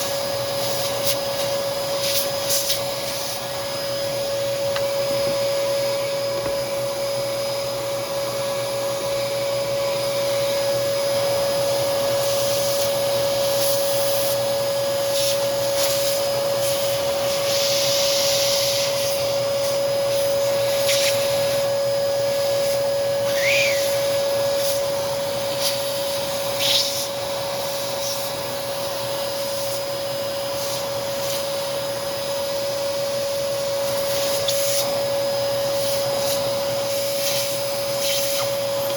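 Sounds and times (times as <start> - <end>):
vacuum cleaner running: 0.0 - 38.9
hissing and scratchy sounds: 0.6 - 3.4, 15.1 - 21.6, 22.6 - 28.4, 34.0 - 35.0, 35.7 - 38.9.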